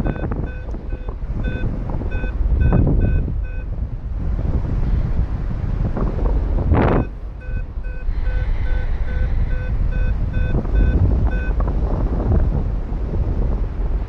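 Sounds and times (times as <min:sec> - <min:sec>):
variometer short beeps: 0:00.0 - 0:03.8, 0:06.9 - 0:11.6
wind rushing over microphone: 0:00.0 - 0:14.0.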